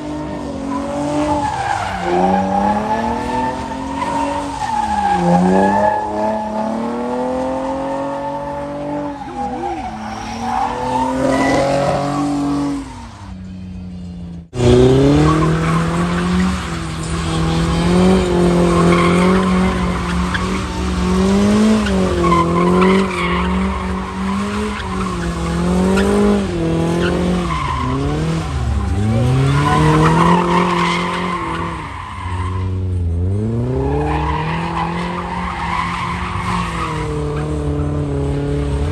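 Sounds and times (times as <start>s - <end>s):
car engines revving: 0.0s - 38.9s
tyres squealing: 14.6s - 32.9s.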